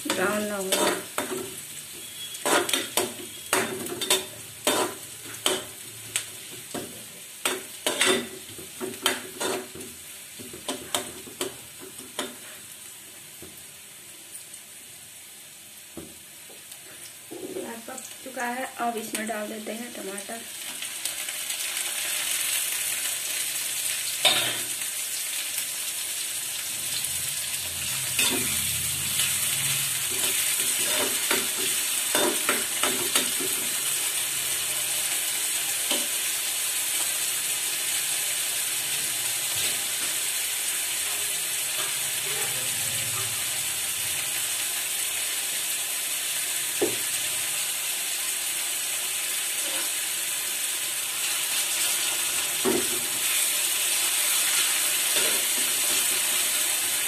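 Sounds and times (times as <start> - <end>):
food sizzling in oil: 0.0 - 57.0
spatula scraping a pan: 0.1 - 5.8, 9.0 - 9.8, 28.1 - 33.8, 54.5 - 56.4.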